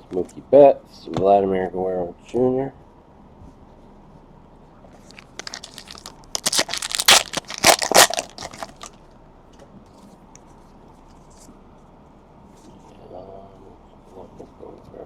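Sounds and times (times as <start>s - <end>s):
wrapper tearing and crinkling: 5.1s - 8.9s.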